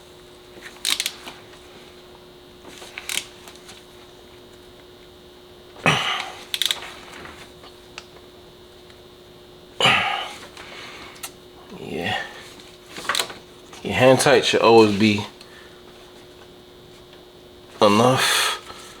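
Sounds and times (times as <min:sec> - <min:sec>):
faint steady hum: 0:00.0 - 0:19.0
ratchet clicking: 0:00.8 - 0:01.2, 0:06.5 - 0:06.8.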